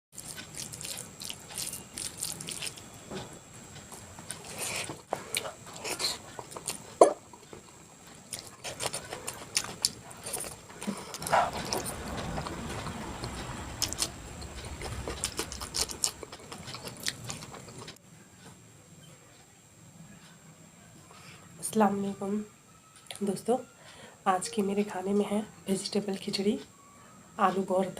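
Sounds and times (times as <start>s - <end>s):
chewing with mouth clicks: 0.1s - 2.9s, 3.8s - 18.0s.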